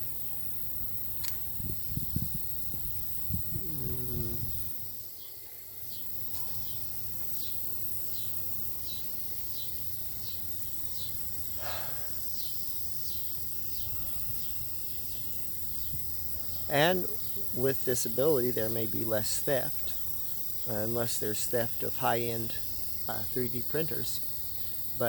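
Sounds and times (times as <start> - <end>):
cricket chirping: 0.0 - 25.0
low steady hum: 15.5 - 25.0.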